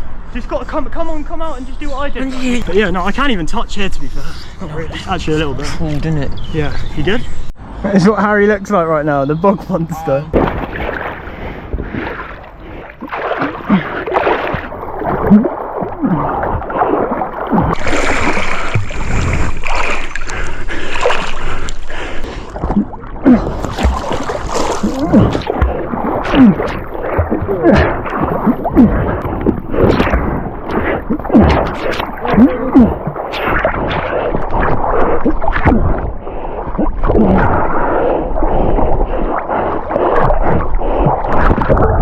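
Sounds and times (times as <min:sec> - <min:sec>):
river water splashing and gurgling: 0:10.4 - 0:42.0.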